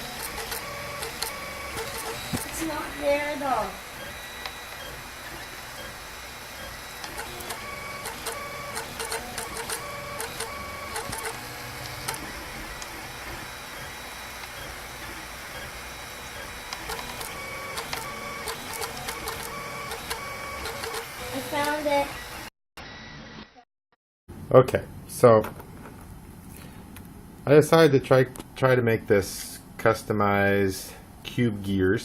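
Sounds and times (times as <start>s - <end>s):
stepper motors whirring: 0.0s - 23.3s
printer clicks: 7.0s - 12.9s, 16.7s - 21.8s.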